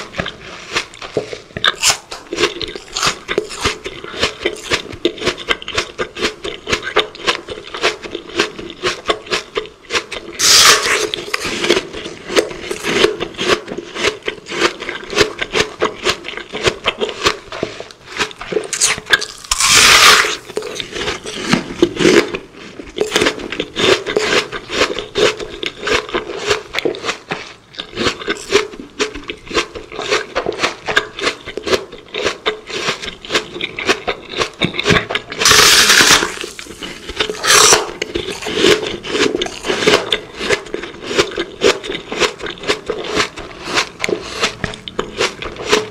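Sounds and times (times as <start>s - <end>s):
crunching and chewing food: 0.0s - 45.9s.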